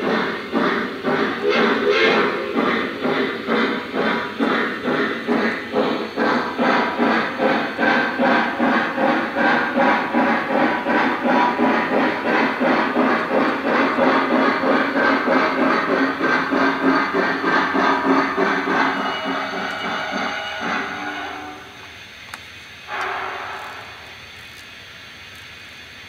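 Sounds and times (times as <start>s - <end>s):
model locomotive steam chuffs: 0.0s - 26.0s.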